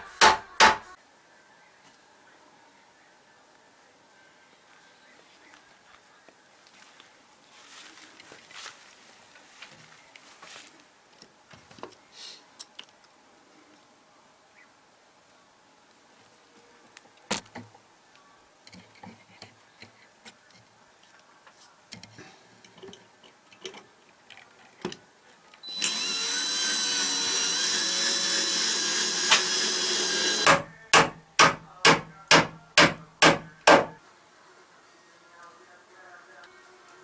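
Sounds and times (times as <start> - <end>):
hammer driving nails into wood: 0.0 - 0.9, 25.8 - 34.0
power tool whining: 25.6 - 30.7.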